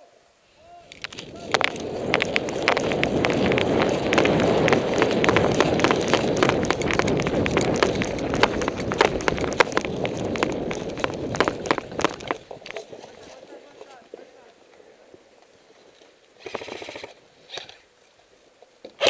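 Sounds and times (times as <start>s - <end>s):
running footfalls: 0.7s - 14.3s
gear rattling: 0.9s - 13.4s.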